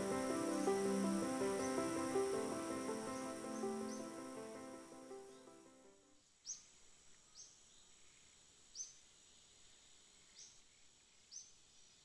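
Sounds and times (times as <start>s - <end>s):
bird chirping: 0.0s - 5.8s
faint high hiss: 0.0s - 12.0s.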